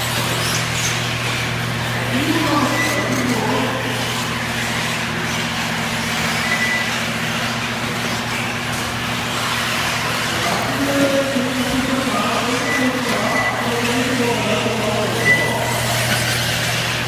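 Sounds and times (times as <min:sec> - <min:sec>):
rc buggies running: 0:00.0 - 0:17.0
short high beep: 0:02.5 - 0:03.3, 0:06.4 - 0:06.9, 0:12.5 - 0:13.7, 0:15.1 - 0:16.0.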